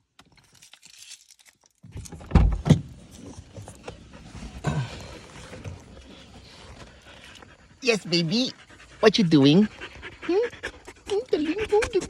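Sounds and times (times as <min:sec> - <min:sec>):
dogs scrambling: 0:03.6 - 0:12.0.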